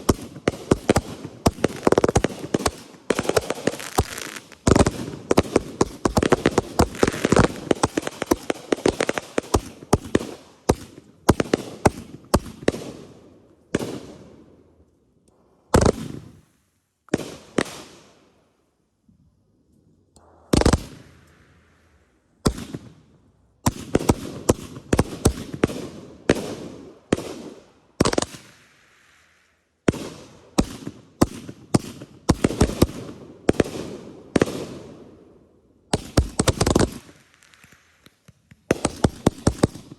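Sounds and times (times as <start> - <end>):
fireworks banging with echo: 0.0 - 13.1, 29.9 - 34.9, 35.9 - 39.9.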